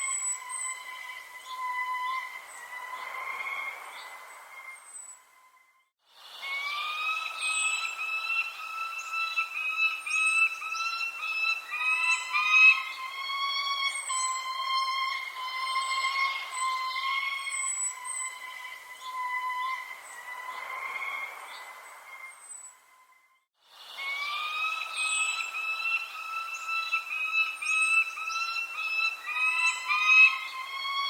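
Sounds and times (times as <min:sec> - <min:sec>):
bird whistling held notes: 0:00.0 - 0:03.0, 0:06.4 - 0:20.7, 0:24.0 - 0:31.0
high bird chirps: 0:06.6 - 0:20.6, 0:24.2 - 0:31.0.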